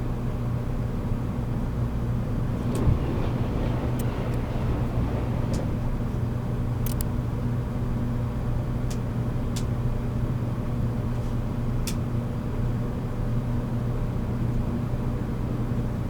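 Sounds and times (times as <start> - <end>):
train wheels rumbling on rail: 1.2 - 10.5
low motor hum: 2.0 - 8.0.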